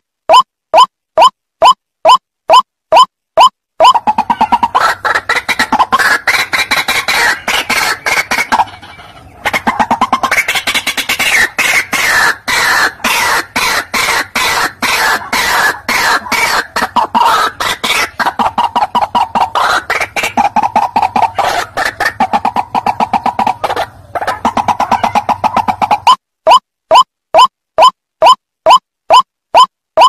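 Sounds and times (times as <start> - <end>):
bird chattering call: 3.8 - 26.2.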